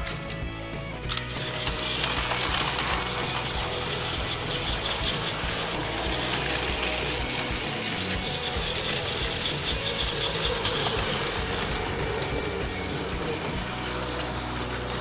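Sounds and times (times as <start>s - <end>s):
toy train motor whirring: 1.1s - 15.0s
wheels clicking over plastic track: 1.1s - 15.0s.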